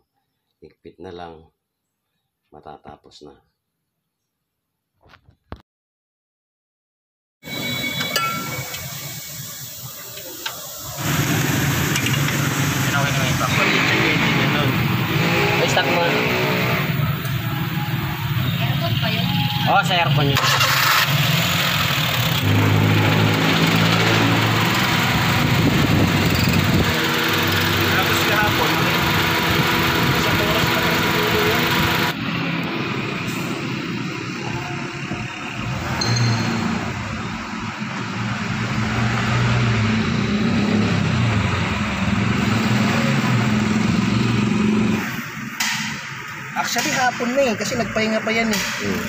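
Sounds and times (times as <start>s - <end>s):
car engine running: 20.3s - 36.0s.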